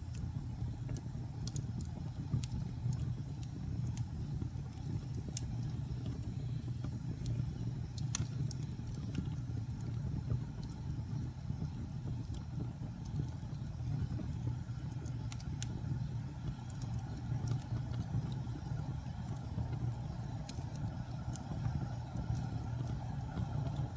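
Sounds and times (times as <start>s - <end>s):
fire crackles and pops: 0.0s - 23.9s
wood fire burning: 0.0s - 23.9s.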